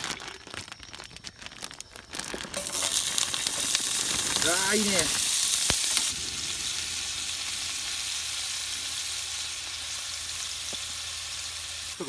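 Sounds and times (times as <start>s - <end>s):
food sizzling in a frying pan: 2.5s - 12.0s.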